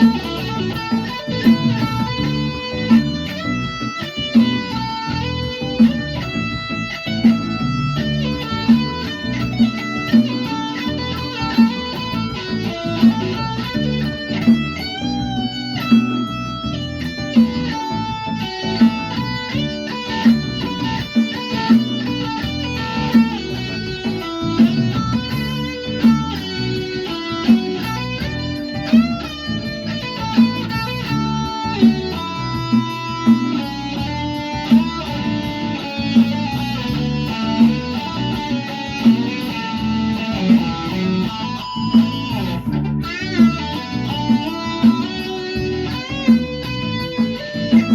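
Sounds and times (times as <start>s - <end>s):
guitar music over a beat: 0.0s - 47.9s.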